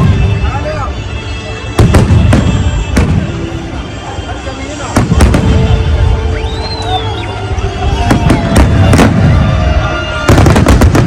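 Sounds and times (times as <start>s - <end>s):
low rumble of firework bursts: 1.7s - 4.0s, 4.9s - 6.2s, 7.9s - 11.0s
sharp firework cracks: 5.0s - 5.7s, 8.1s - 9.5s, 10.2s - 11.0s.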